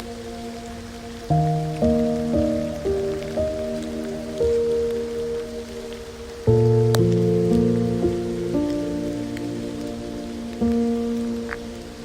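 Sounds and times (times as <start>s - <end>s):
rain hiss: 0.0s - 12.0s
slow soft piano music: 0.0s - 12.0s.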